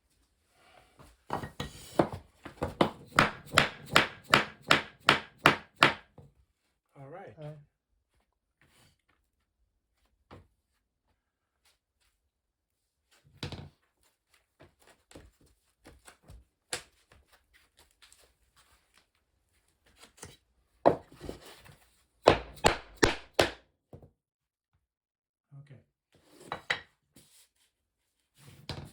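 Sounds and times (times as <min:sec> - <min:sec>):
wooden floor tiles knocking: 0:01.3 - 0:06.3, 0:22.3 - 0:24.1.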